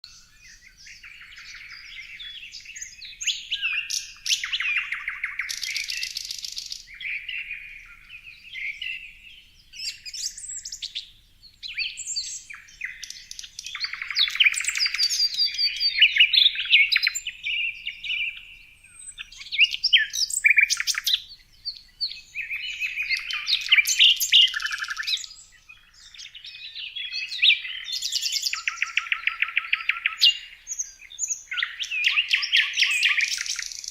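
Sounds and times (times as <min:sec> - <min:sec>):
songbirds chirping and singing: 0:00.0 - 0:33.9.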